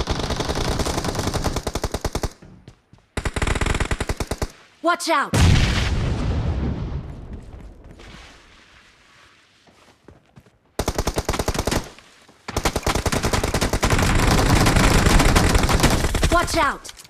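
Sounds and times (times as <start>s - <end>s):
video game automatic gunfire: 0.0s - 2.4s, 3.2s - 4.6s, 10.8s - 11.9s, 12.5s - 16.6s.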